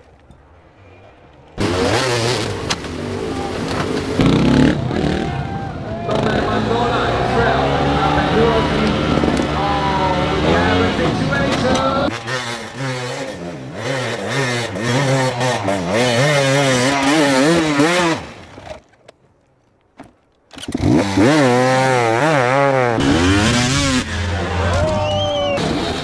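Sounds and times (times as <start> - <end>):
dirt bike engine revving: 1.6 - 18.8, 20.6 - 26.0.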